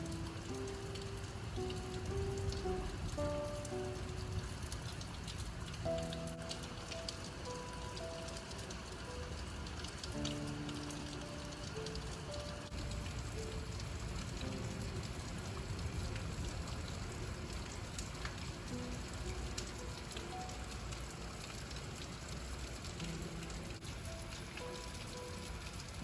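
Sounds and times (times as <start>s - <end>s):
soft musical notes: 0.0s - 4.8s, 5.8s - 13.6s
raindrops ticking: 0.0s - 26.0s
steady rain hiss: 0.0s - 26.0s.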